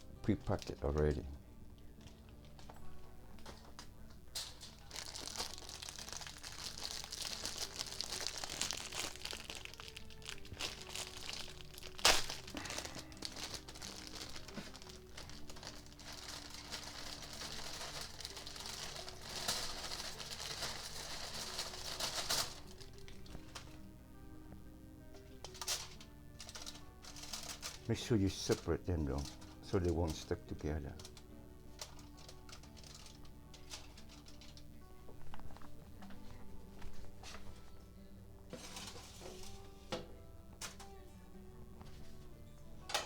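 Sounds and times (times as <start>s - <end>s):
plastic packaging crinkling: 4.4s - 23.8s, 25.4s - 35.8s.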